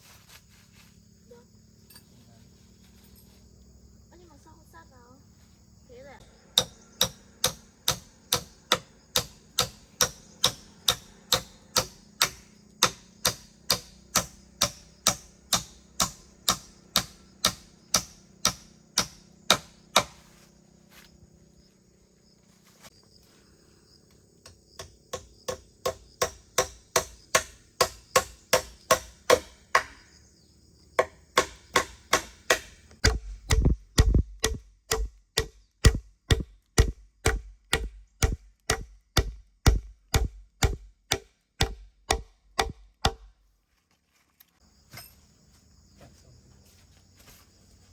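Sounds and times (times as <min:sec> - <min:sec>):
hammer nailing floorboards: 0:31.0 - 0:43.3.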